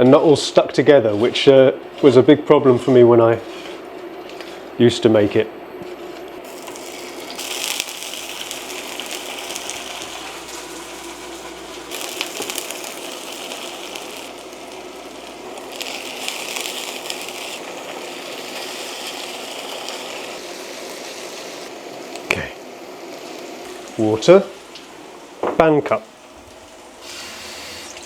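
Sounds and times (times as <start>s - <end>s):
fish sizzling in a pan: 6.4s - 25.4s.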